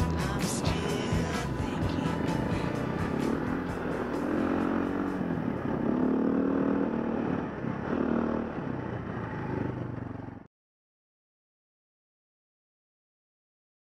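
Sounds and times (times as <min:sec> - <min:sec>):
motorcycle engine revving: 0:00.0 - 0:10.5.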